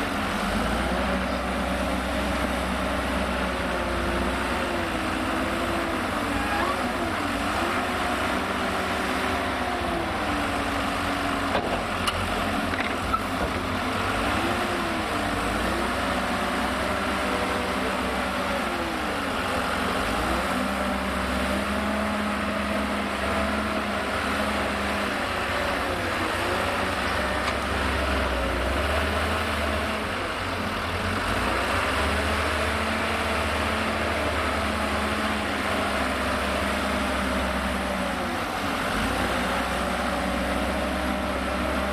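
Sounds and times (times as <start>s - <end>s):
second steady engine: 0.0s - 41.9s
wheel loader diesel engine: 0.0s - 41.9s.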